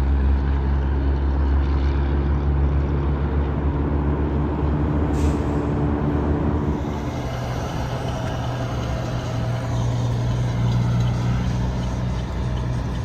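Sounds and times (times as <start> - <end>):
highway traffic passing: 0.0 - 13.0.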